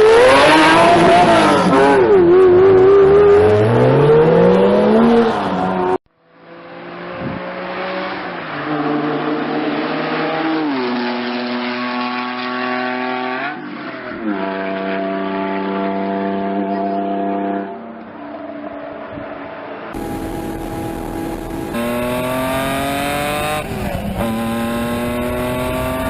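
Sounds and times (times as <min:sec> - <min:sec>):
sports car engine running hard: 0:20.0 - 0:26.0.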